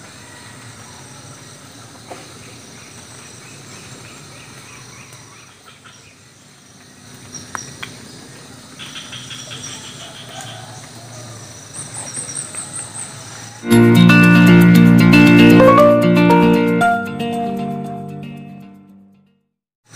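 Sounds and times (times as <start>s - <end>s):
insects and crickets trilling: 0.0s - 13.6s
birds chirping: 2.3s - 13.7s.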